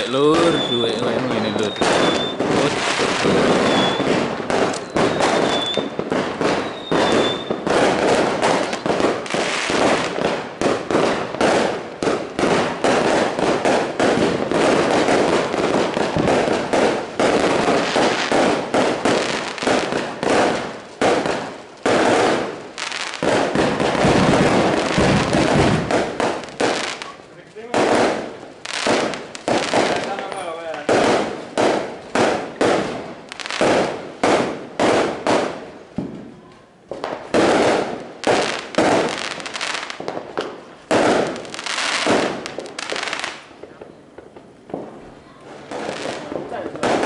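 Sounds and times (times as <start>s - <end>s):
fireworks crackling and banging: 0.0s - 47.0s
firework whistles: 0.2s - 8.8s.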